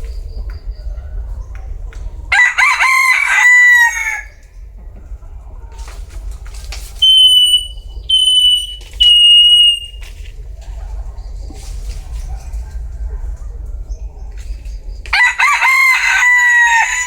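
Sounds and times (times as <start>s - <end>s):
rooster crowing: 2.3s - 4.4s, 15.1s - 17.0s.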